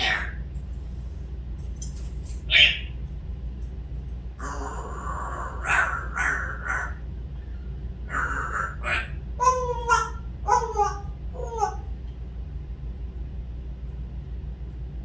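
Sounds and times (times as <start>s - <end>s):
bird harsh rasping calls: 0.0s - 0.4s, 2.5s - 3.0s, 4.4s - 7.0s, 8.1s - 11.9s.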